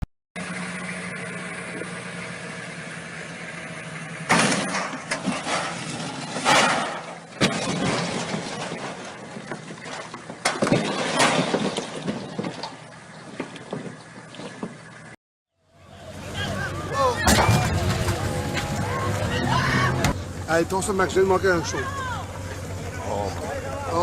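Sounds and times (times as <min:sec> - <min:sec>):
boat engine running: 0:00.4 - 0:04.3, 0:12.6 - 0:24.0
sharp crack: 0:04.3 - 0:09.3
loud rushes of noise: 0:15.7 - 0:21.4.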